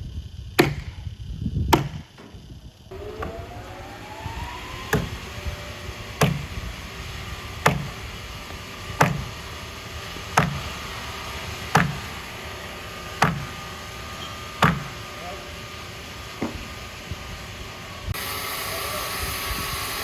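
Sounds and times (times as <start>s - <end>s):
sawmill machinery humming: 0.1s - 20.0s
sharp knocks: 0.6s - 1.0s, 1.7s - 2.4s, 6.2s - 6.5s, 7.6s - 8.0s, 9.0s - 9.3s, 10.4s - 10.7s, 11.7s - 12.1s, 13.2s - 13.6s, 14.6s - 15.0s
machine whine rising in pitch: 2.8s - 20.0s.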